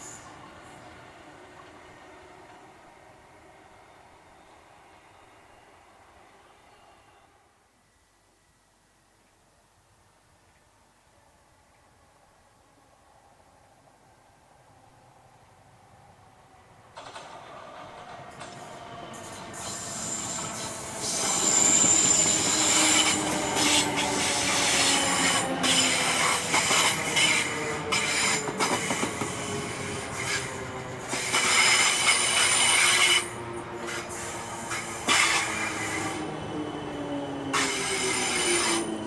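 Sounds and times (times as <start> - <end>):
wheels clicking on track: 16.9 - 39.0
electric train motor whine: 18.0 - 39.0
high-pitched wheel squeal: 19.1 - 30.6.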